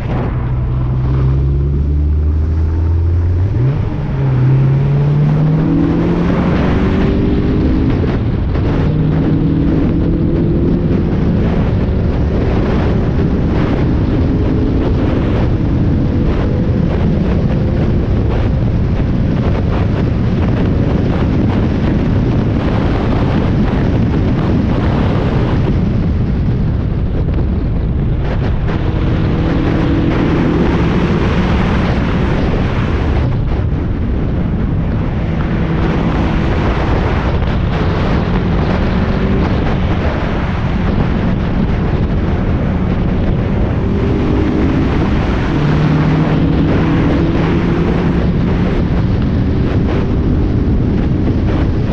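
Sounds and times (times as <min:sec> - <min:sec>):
race car engine: 0:00.0 - 0:51.9
road noise: 0:00.0 - 0:51.9
wind buffeting: 0:00.0 - 0:51.9.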